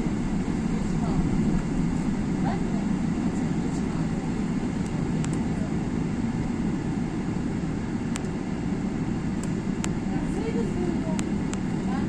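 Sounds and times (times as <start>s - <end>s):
jet engines rumbling: 0.0s - 12.0s
faint clicks: 8.1s - 8.4s, 11.1s - 11.6s.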